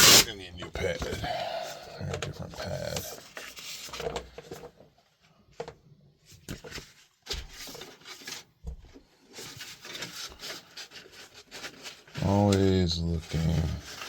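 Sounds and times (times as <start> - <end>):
hand rubbing a pad: 0.0 - 0.3.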